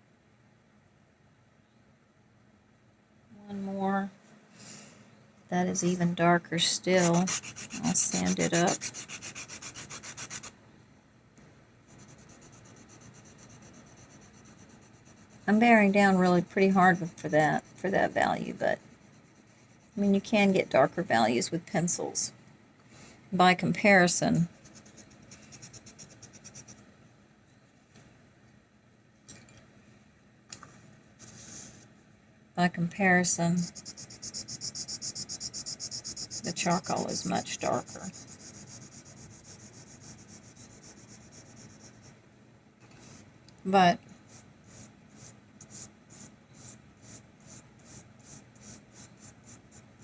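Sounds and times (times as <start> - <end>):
faint pencil scratches: 6.6 - 10.5, 11.9 - 21.0, 24.5 - 26.8, 33.4 - 42.2, 44.3 - 50.0
pencil scribbling on paper: 6.7 - 10.5, 11.9 - 20.2, 24.6 - 26.8, 33.6 - 42.2, 44.3 - 49.9.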